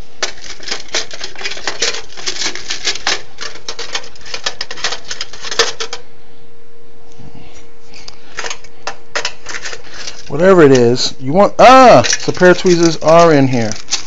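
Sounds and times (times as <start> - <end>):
small hard objects rattling in bucket: 0.0 - 6.0, 9.2 - 11.0, 11.6 - 14.0.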